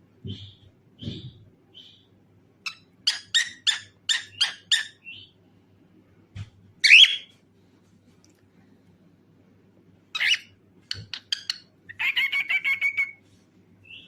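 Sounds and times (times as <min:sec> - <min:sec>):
cockatiel chirping: 0:02.6 - 0:05.3, 0:06.8 - 0:07.3, 0:10.2 - 0:13.2.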